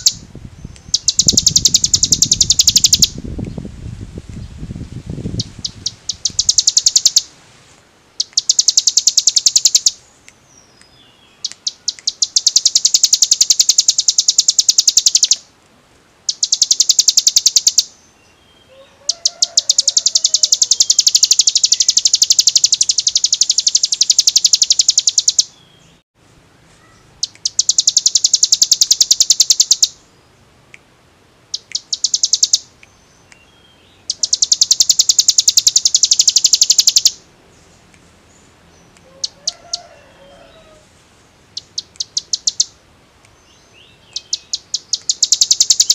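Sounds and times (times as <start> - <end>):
bird singing rapid trill: 0.0 - 3.2, 5.3 - 7.3, 8.2 - 15.4, 16.3 - 26.0, 26.9 - 30.4, 31.5 - 40.8, 41.5 - 45.9.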